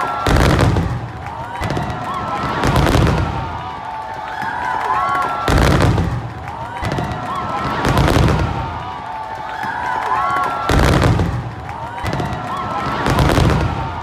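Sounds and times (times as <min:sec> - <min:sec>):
fireworks booms with rumbling tail: 0:00.2 - 0:03.6, 0:05.5 - 0:08.8, 0:10.7 - 0:14.0.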